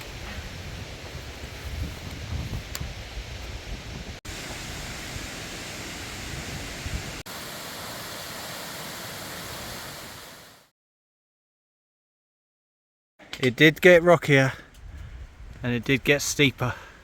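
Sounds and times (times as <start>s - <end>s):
steady rushing hiss: 0.0s - 10.7s.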